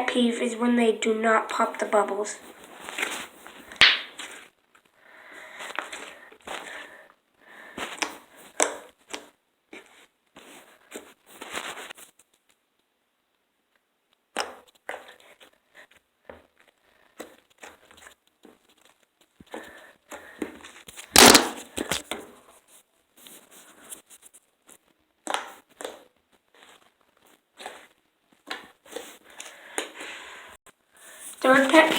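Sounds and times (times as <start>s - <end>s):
slime crackling and squelching: 21.2s - 22.0s.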